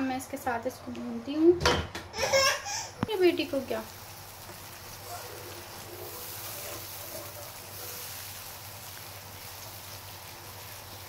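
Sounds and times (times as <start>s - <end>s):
food sizzling in a wok: 3.1s - 11.0s.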